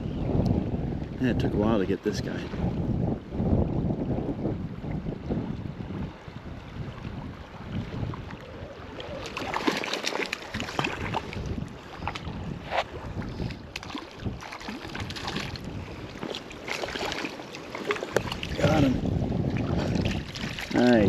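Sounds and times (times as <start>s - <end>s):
wind buffeting microphone: 0.0s - 21.0s
river water splashing: 5.2s - 21.0s.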